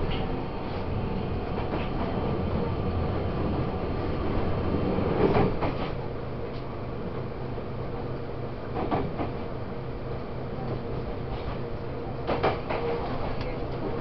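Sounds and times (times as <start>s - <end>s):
train clattering: 0.0s - 3.6s, 4.2s - 6.7s, 8.7s - 9.5s, 10.6s - 14.0s
train wheels rumbling on track: 0.0s - 14.0s.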